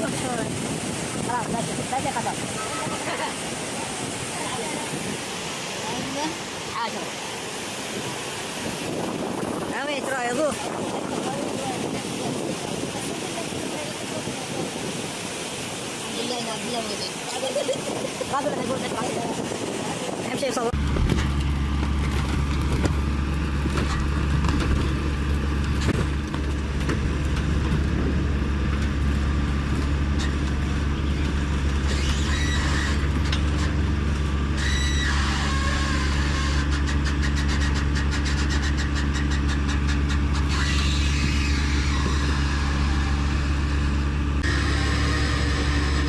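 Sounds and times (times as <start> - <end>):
diesel engine droning: 20.8 - 46.0
high squeals: 31.8 - 33.2, 34.5 - 46.0.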